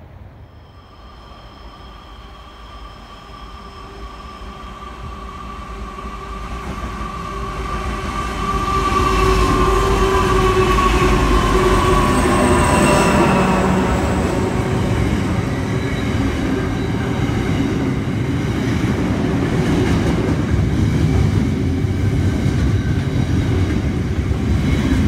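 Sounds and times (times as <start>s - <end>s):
freight train rumble passing: 0.0s - 25.0s
steady high ringing: 8.3s - 18.2s.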